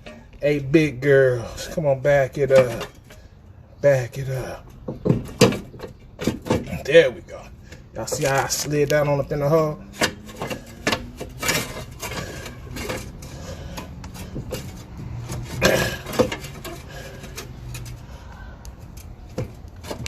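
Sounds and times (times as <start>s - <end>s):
metal parts and tools clinking: 1.4s - 3.3s, 8.0s - 20.0s
metal clunks: 4.4s - 18.1s, 18.9s - 20.0s.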